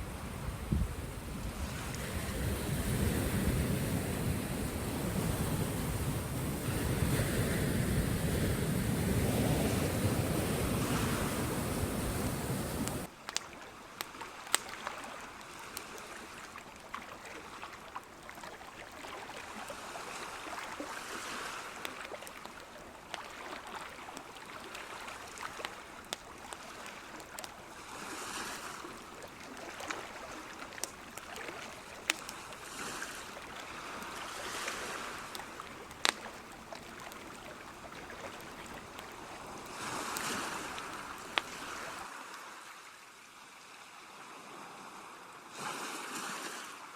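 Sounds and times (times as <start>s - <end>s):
sea waves washing in: 0.0s - 13.1s, 14.2s - 42.8s.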